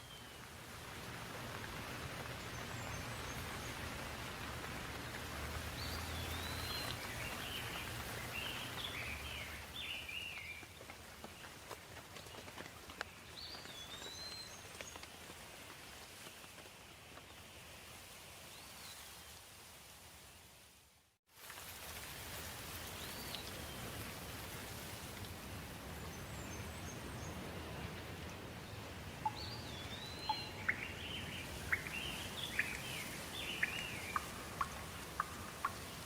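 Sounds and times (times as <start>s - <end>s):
steady rain falling: 0.0s - 36.0s
bird chirping: 5.8s - 10.6s, 29.2s - 35.9s.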